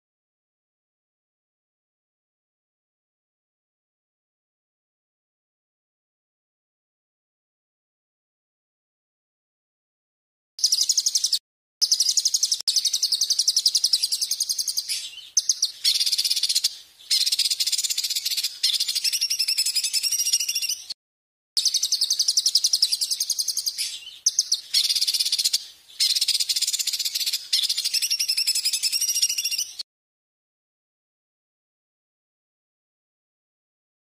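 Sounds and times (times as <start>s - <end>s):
songbird trilling: 10.6s - 21.0s, 21.6s - 29.8s.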